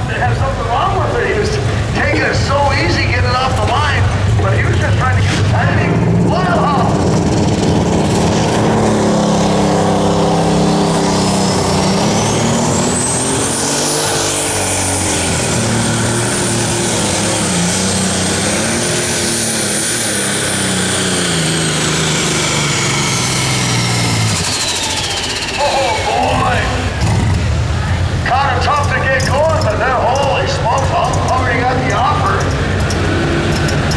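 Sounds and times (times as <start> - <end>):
diesel tractor engine at full power: 0.0 - 33.9
high turbo whine: 0.0 - 33.9.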